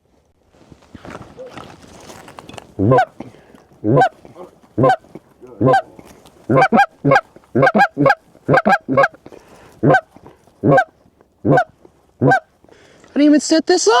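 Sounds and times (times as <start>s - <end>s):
goose call honks and clucks: 2.8s - 3.2s, 3.8s - 9.2s, 9.8s - 12.5s.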